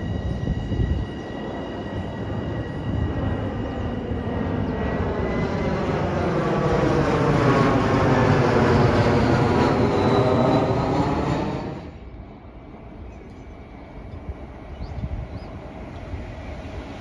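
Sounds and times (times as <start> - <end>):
train wheels rumbling on rail: 0.0 - 4.0.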